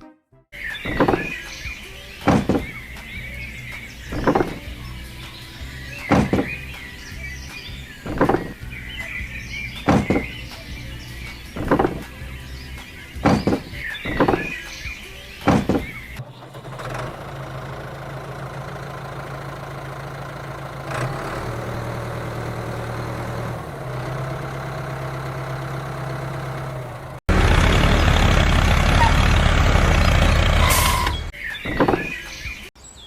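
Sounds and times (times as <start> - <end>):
rough rattling engine running: 15.8 - 31.3
small motor humming: 16.2 - 27.2.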